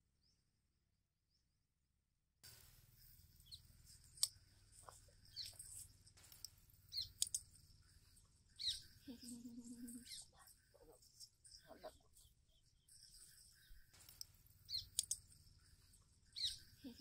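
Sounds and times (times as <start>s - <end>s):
sharp clicks: 2.4s - 9.0s, 13.0s - 16.7s
birds chirping: 2.4s - 17.0s
faint background noise: 2.4s - 17.0s
short high falling bird calls: 2.5s - 10.7s, 11.4s - 17.0s.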